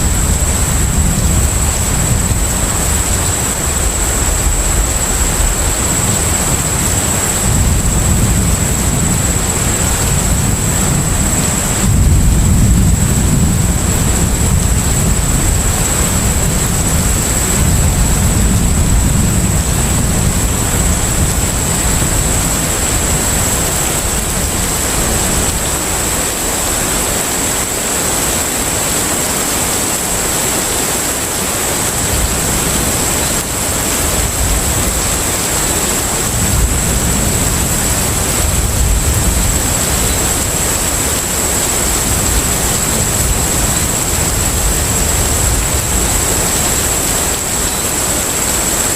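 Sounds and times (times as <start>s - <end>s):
deep ship rumble: 0.0s - 29.1s
high-pitched whine: 0.0s - 48.9s
water and wind rushing: 0.0s - 48.9s.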